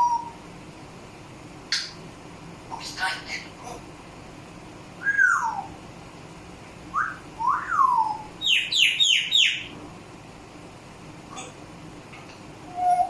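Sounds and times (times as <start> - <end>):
parrot chirps: 5.0 - 5.8, 6.9 - 9.7
parrot whistling: 5.0 - 5.8, 6.9 - 9.7, 12.7 - 13.0.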